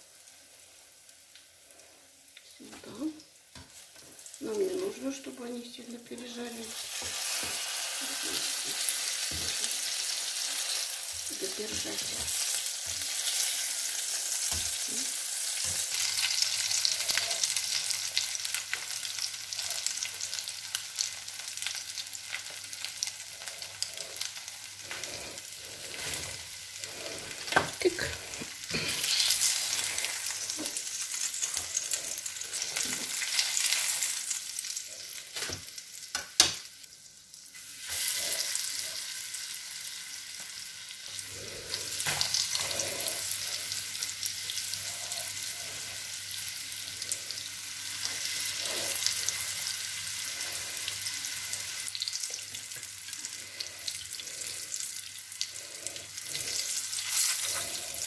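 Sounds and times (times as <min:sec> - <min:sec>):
pancakes sizzling in hot oil: 0:00.0 - 0:58.0.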